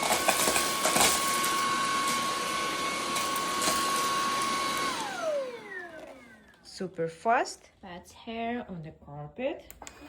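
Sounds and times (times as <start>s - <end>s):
vacuum motor whining: 0.0s - 6.8s.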